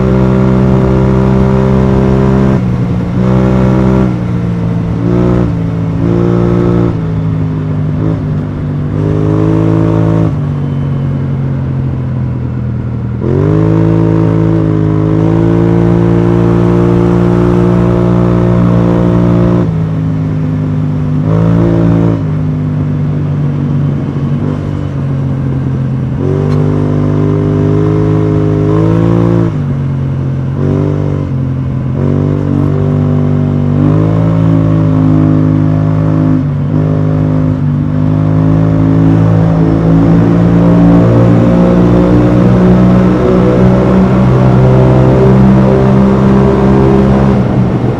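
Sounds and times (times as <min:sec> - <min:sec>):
scooter engine accelerating: 0:36.1 - 0:47.9.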